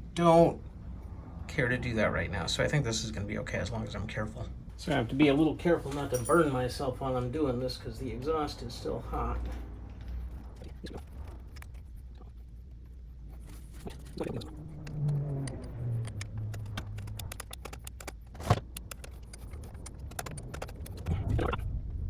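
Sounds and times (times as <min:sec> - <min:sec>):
low steady hum: 0:00.0 - 0:22.0
hand tools clicking and scraping metal: 0:05.8 - 0:06.8.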